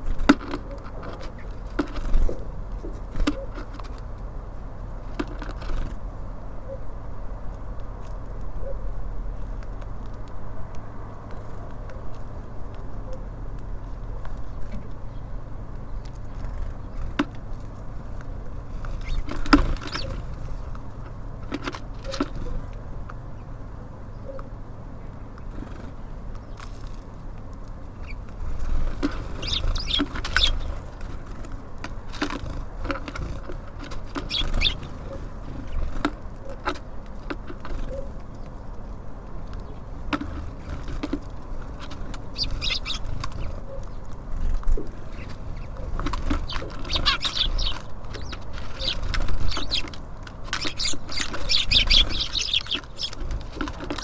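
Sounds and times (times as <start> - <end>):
birds pecking and tapping: 0.0 - 6.5, 9.4 - 23.7, 24.3 - 54.0
short high bird chirps: 46.4 - 49.9, 50.6 - 53.2.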